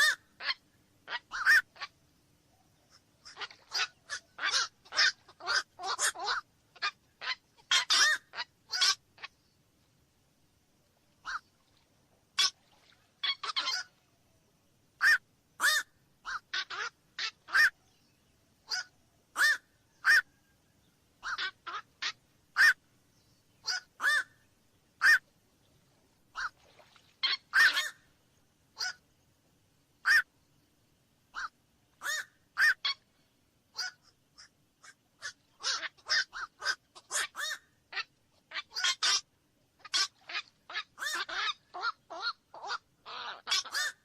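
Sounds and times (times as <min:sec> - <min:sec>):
heron harsh calls: 0:00.0 - 0:01.9, 0:03.2 - 0:09.0, 0:23.6 - 0:24.3, 0:27.3 - 0:28.0, 0:31.4 - 0:32.9, 0:33.8 - 0:39.2, 0:39.8 - 0:44.0.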